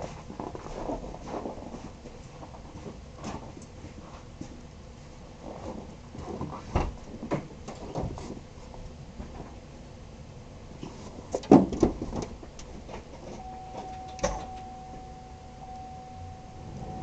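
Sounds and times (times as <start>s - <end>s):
steady single tone: 13.4s - 17.0s.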